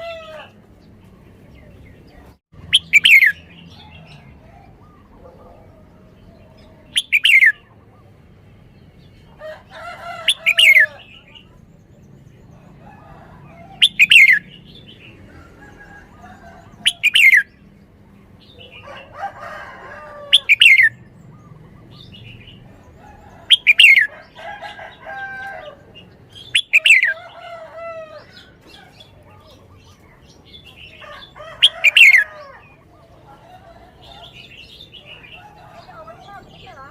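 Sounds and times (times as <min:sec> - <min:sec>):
bulbul singing: 0:01.5 - 0:08.2, 0:13.8 - 0:15.2, 0:16.6 - 0:19.1, 0:20.4 - 0:25.1, 0:25.8 - 0:27.3.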